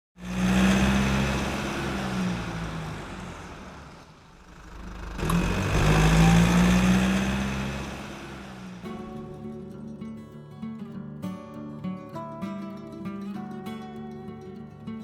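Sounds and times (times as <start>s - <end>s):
vehicle engine running: 0.2s - 9.6s.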